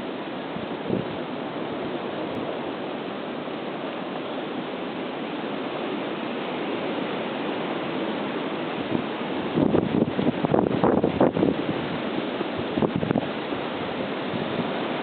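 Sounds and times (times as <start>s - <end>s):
blizzard wind blowing: 0.0s - 15.0s
wind gust buffeting microphone: 0.7s - 1.2s, 8.8s - 15.0s.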